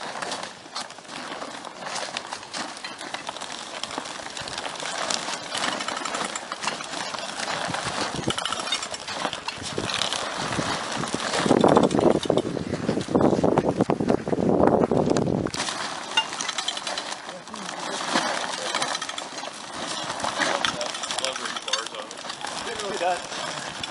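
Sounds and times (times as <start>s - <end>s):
plastic sheeting crackling: 0.0s - 23.9s.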